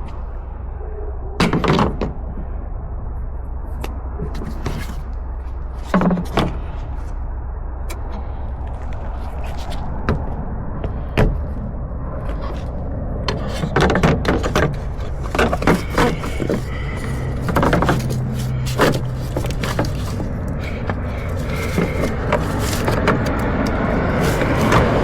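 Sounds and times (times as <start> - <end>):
steady low rumble: 0.0 - 25.0
tools clicking and scraping: 13.3 - 25.0.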